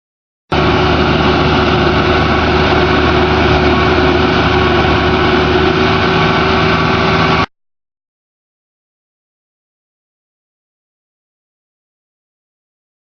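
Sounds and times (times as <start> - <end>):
diesel engine running under load: 0.5 - 7.5.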